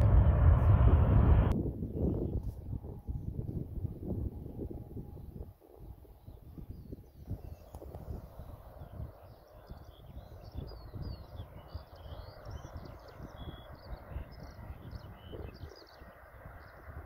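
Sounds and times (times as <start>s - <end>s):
wind rumbling on microphone: 0.0s - 17.0s
small birds chirping: 6.2s - 17.0s.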